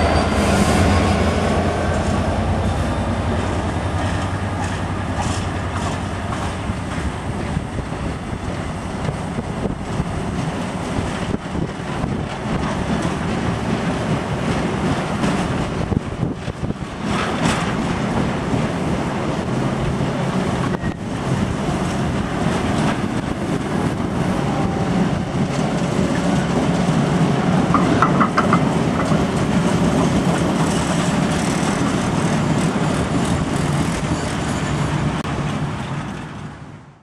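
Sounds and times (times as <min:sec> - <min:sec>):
wheels rumbling on track: 0:00.0 - 0:37.0
high wheel squeaks: 0:30.6 - 0:35.2.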